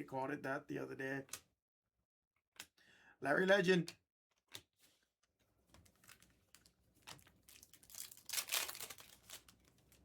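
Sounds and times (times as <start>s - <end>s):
foil wrapper crinkling and tearing: 5.9s - 10.0s.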